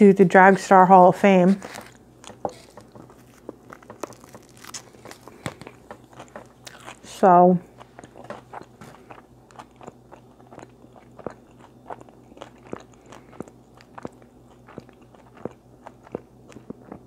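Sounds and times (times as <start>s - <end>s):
person chewing food: 1.6s - 17.0s.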